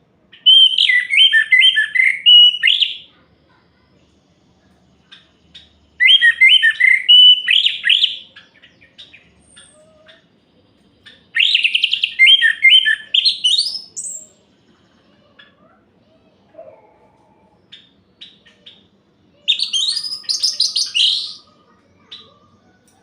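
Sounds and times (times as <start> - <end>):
bird singing whistled notes: 0.4 - 3.1, 5.1 - 9.8, 11.0 - 14.4, 19.4 - 21.5.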